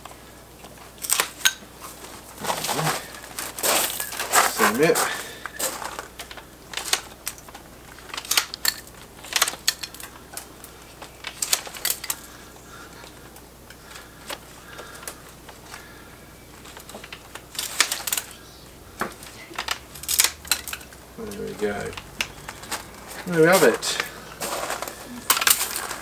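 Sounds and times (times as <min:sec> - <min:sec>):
loppers snipping willow rods: 0:19.2 - 0:26.0.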